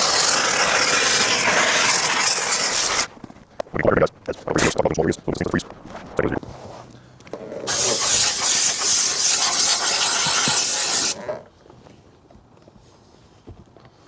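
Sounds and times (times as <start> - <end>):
steam cleaner hissing: 0.0 - 3.1, 7.7 - 11.2.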